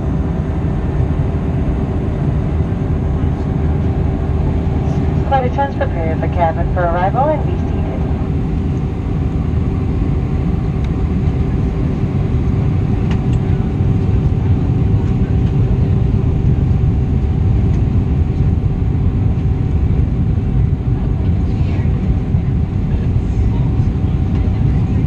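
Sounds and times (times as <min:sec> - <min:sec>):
airliner cabin rumble: 0:00.0 - 0:25.0
faint steady hum: 0:03.2 - 0:11.7.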